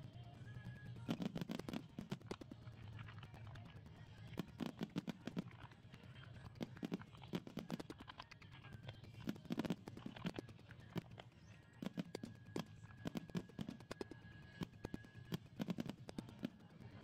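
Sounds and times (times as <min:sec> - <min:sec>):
fireworks bursting and crackling: 0:01.1 - 0:02.4, 0:04.4 - 0:05.6, 0:06.5 - 0:08.1, 0:11.8 - 0:16.8.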